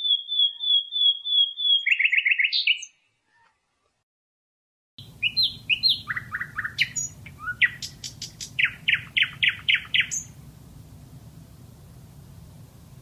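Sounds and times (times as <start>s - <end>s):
nightingale singing: 0.0s - 3.5s, 5.0s - 10.4s.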